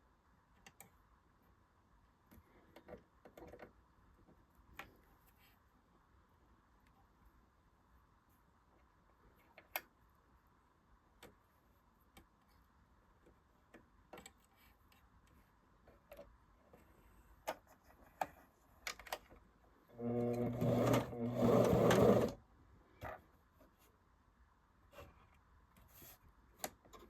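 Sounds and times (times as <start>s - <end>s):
sewing machine motor running: 20.0s - 22.4s.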